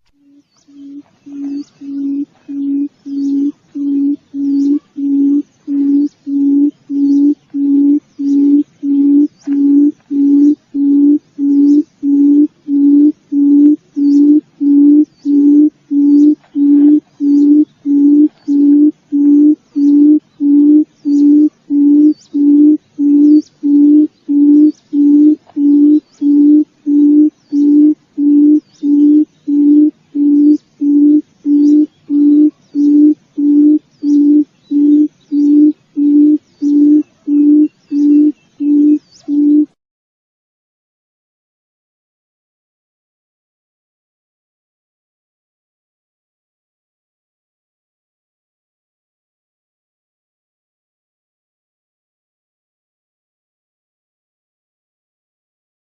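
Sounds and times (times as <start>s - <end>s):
quail low hoots: 0.1s - 39.8s.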